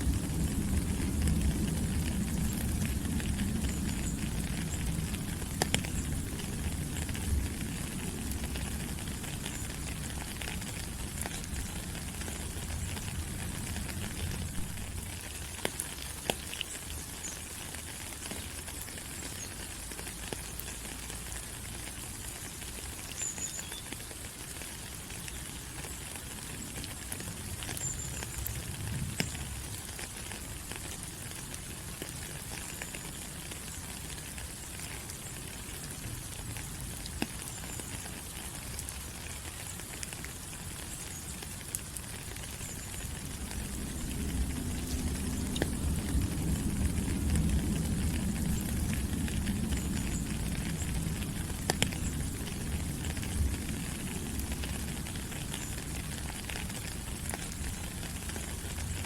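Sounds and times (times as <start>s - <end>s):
rain on foliage: 0.0s - 59.0s.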